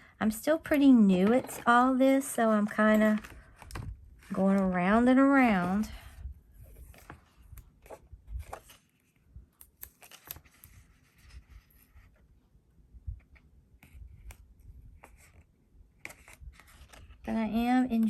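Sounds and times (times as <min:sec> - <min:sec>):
paper and tape handling: 0:06.6 - 0:12.2.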